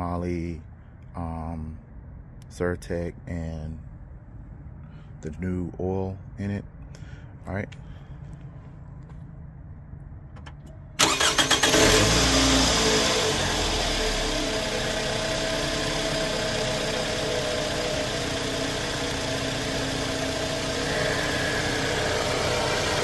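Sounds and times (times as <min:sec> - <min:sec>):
car engine idling: 0:10.2 - 0:23.0
starter motor cranking: 0:11.0 - 0:13.8, 0:20.8 - 0:23.0.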